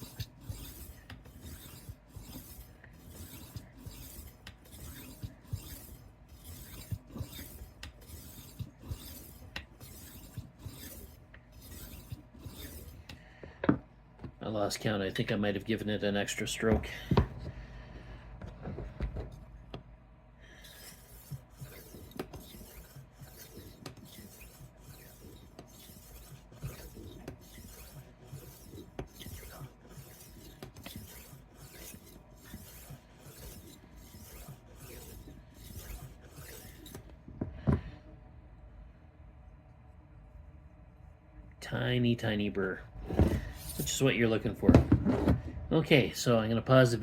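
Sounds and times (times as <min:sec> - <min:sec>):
knife sharpener scraping blade: 0:00.0 - 0:13.1, 0:20.6 - 0:37.1.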